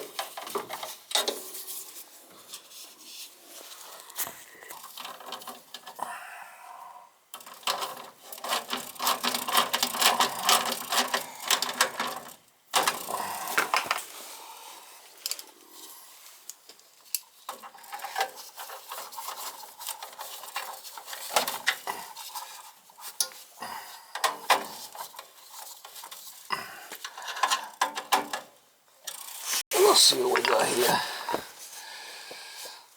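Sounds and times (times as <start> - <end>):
clicking and rattling of parts: 0.0 - 1.5, 4.7 - 6.0, 7.3 - 14.1, 16.4 - 23.5, 24.1 - 29.4.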